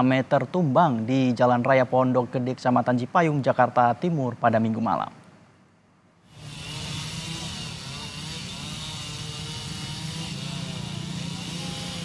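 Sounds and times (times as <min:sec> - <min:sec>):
small petrol engine running: 0:06.3 - 0:12.0
street noise: 0:06.3 - 0:12.0.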